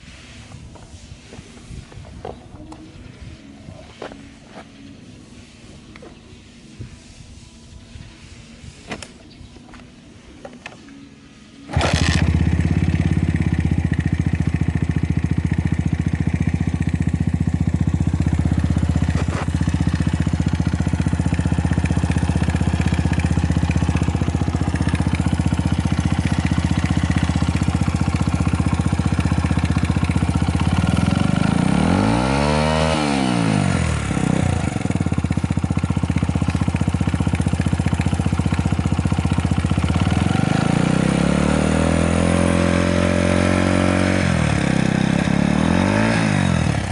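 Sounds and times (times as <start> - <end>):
small engine idling and revving: 11.7 - 46.9.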